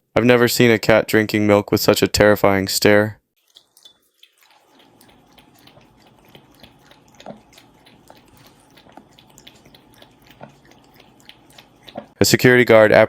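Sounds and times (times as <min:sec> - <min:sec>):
cat lapping milk: 0:03.4 - 0:12.2.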